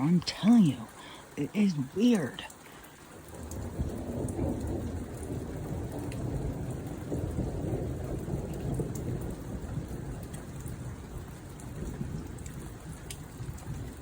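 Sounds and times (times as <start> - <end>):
rain falling: 0.0 - 14.0
thunder rumbling: 3.3 - 14.0.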